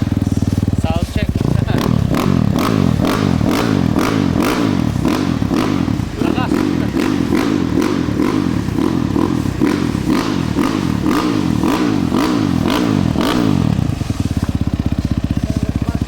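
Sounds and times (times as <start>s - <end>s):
dirt bike engine idling: 0.0s - 16.0s
dirt bike engine revving: 0.0s - 16.0s.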